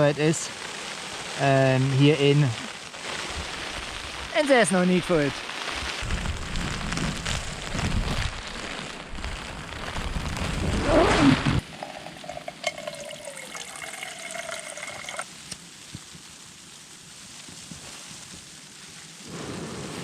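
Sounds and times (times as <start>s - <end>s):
zipper drawn shut: 10.7s - 11.6s.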